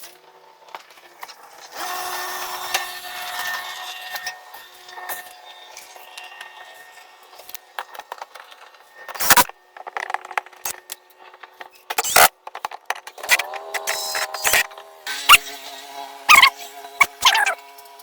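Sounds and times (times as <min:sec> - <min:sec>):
cordless drill motor running: 0:12.0 - 0:12.3, 0:13.2 - 0:17.7.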